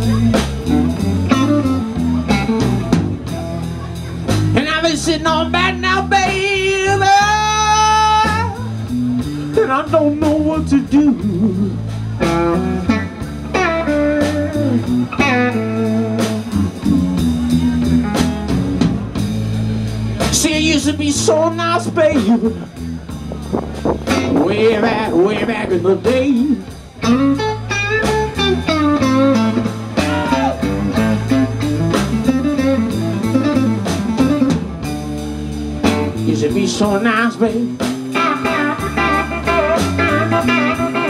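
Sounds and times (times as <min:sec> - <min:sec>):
blues band playing: 0:00.0 - 0:41.0
electric guitar lead with bent notes: 0:00.0 - 0:41.0
person singing: 0:04.6 - 0:08.6
drum beat: 0:13.4 - 0:41.0.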